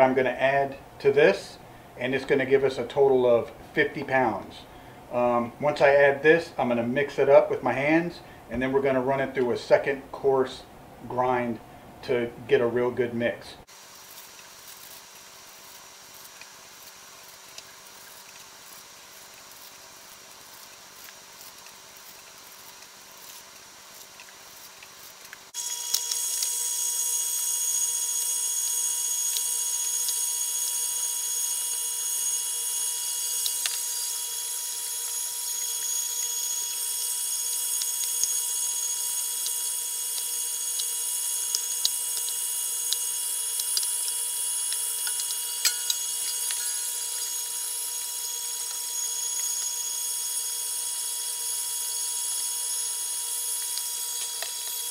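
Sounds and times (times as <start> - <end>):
electric meat grinder whining: 25.6 - 54.9.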